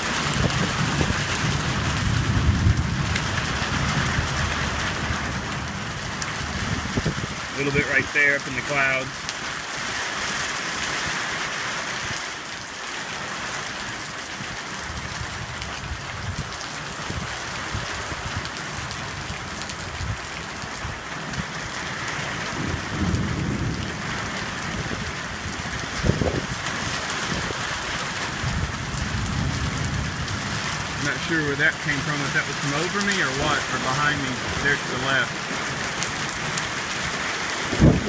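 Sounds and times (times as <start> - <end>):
thunder clap: 0.0 - 7.9, 22.4 - 38.0
thunder rumbling: 0.0 - 8.9, 14.8 - 38.0
heavy rain pouring: 0.0 - 38.0.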